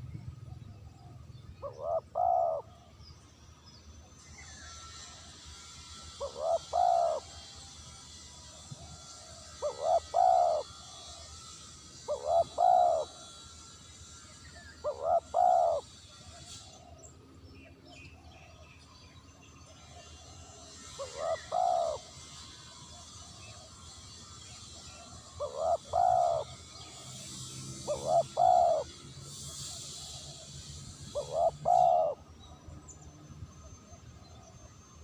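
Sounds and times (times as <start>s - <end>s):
dove cooing: 1.0s - 2.8s, 6.1s - 13.6s, 14.8s - 16.7s, 20.8s - 23.3s, 25.0s - 32.3s.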